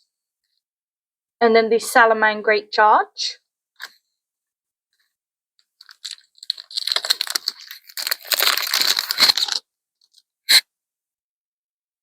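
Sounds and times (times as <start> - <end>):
foil wrapper crackling: 5.8 - 9.6.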